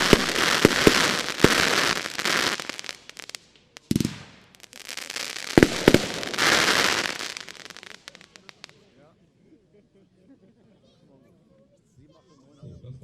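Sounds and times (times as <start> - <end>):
firework sharp bangs: 0.0 - 8.7
firework crackling: 0.0 - 8.8
scattered firework pops: 0.0 - 8.8.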